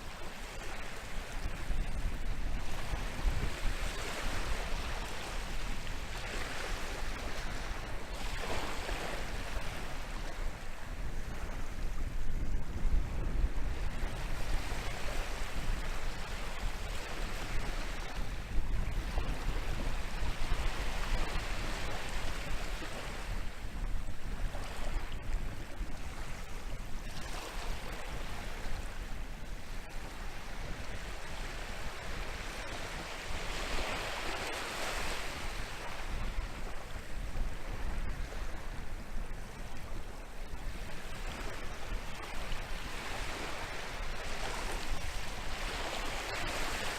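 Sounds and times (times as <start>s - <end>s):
wind on microphone: 0.0s - 46.9s.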